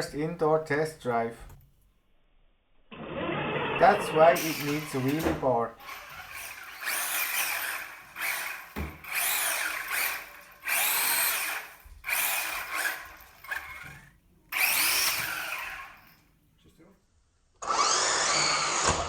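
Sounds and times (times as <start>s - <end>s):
electric motor whining: 3.0s - 16.2s, 17.6s - 19.0s.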